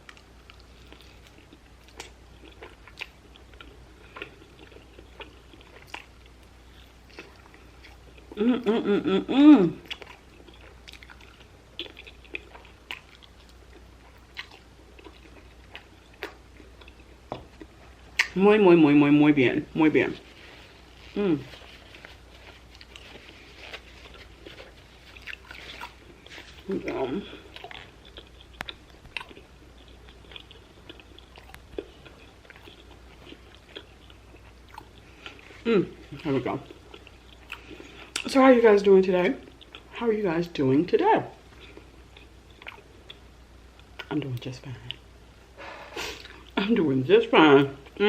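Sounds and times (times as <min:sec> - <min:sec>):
chewing and biting food: 0:00.0 - 0:08.4, 0:09.8 - 0:18.4, 0:20.6 - 0:38.3, 0:41.5 - 0:44.1
person humming: 0:08.4 - 0:09.8, 0:21.1 - 0:21.6, 0:35.6 - 0:36.0.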